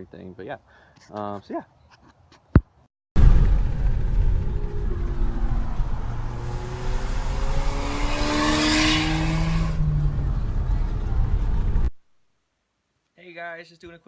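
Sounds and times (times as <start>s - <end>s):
car engine accelerating: 3.2s - 11.9s.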